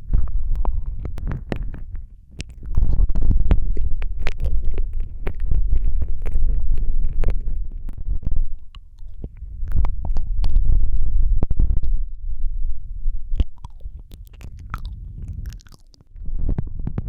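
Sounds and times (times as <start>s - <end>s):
low rumble: 0.0s - 17.0s
wet mouth clicks and smacks: 0.1s - 7.4s, 8.5s - 10.7s, 13.3s - 16.1s.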